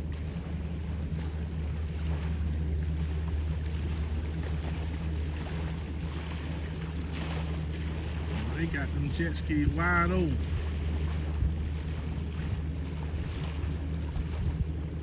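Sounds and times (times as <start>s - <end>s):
low engine hum: 0.0s - 15.0s
wind on microphone: 10.4s - 15.0s.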